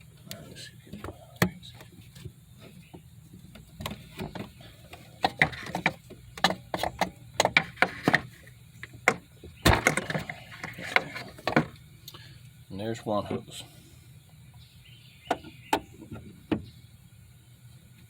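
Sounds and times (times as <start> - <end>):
tools knocking and scraping: 0.9 - 11.8.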